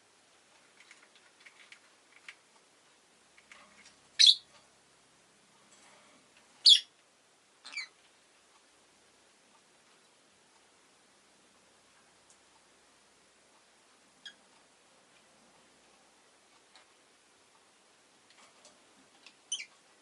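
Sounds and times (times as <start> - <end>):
faint clicks: 0.5 - 2.7
bird chirping sharply: 4.2 - 4.5, 6.6 - 6.9.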